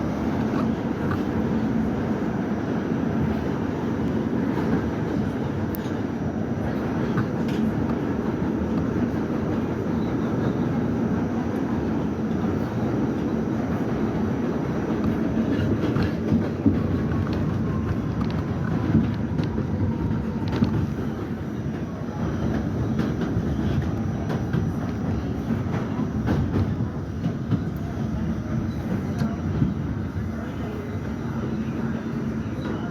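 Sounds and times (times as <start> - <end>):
subway train rumbling on rails: 0.0 - 32.9.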